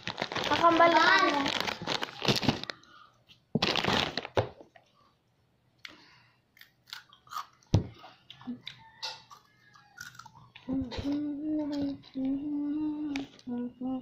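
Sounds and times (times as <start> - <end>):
person chewing crunchy food: 6.5 - 10.7.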